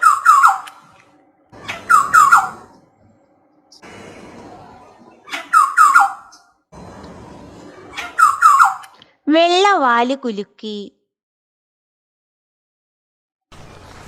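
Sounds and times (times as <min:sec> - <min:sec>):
oriole calling: 0:00.0 - 0:03.9, 0:04.5 - 0:06.5, 0:07.9 - 0:09.0.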